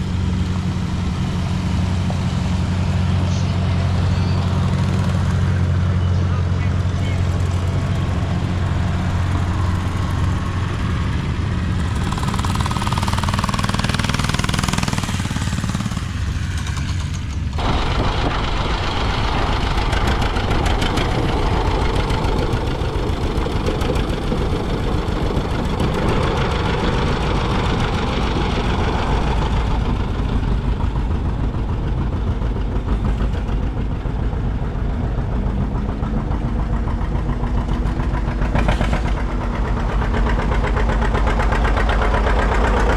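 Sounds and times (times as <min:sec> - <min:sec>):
engine low even hum: 0:00.0 - 0:42.9
engine rough dense running: 0:00.0 - 0:42.9.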